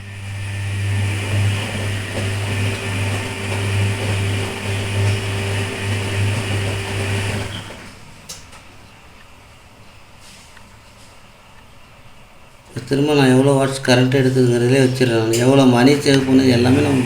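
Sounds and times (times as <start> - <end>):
washing machine motor humming: 0.0 - 8.3, 12.7 - 17.0.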